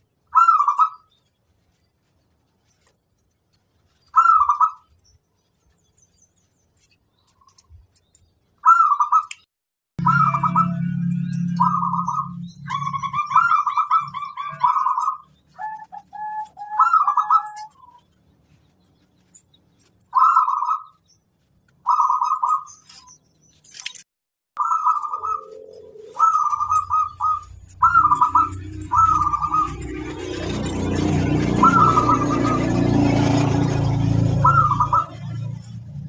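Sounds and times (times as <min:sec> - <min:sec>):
low rumble: 0:10.0 - 0:13.4
dove cooing: 0:10.0 - 0:18.0, 0:20.1 - 0:20.9, 0:24.6 - 0:33.7, 0:34.3 - 0:35.4.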